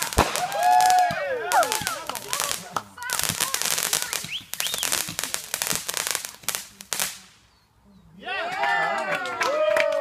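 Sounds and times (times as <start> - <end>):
fireworks crackling: 0.0 - 7.6
voices: 0.0 - 10.0.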